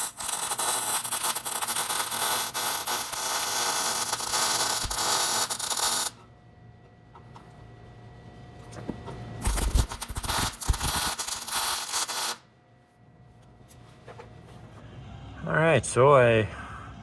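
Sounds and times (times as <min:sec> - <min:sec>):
welding crackling hiss: 0:00.0 - 0:06.2, 0:09.4 - 0:12.4.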